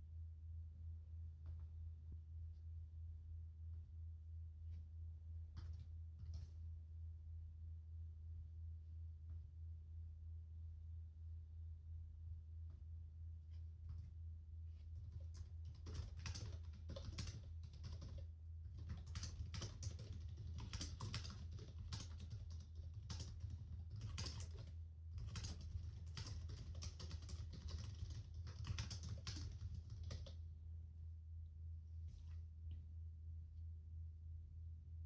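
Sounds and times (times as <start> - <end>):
steady low hum: 0.0 - 35.0
typing on keyboard: 14.9 - 30.4.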